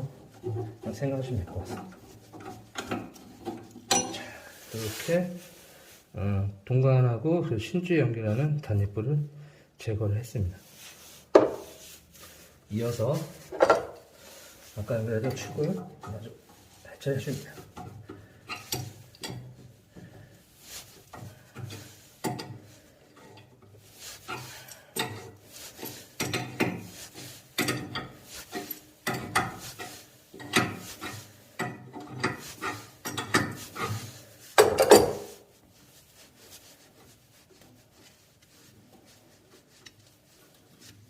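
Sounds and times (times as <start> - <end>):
metal tools clinking on pipe fittings: 2.4 - 4.3, 17.6 - 19.7, 24.2 - 35.3.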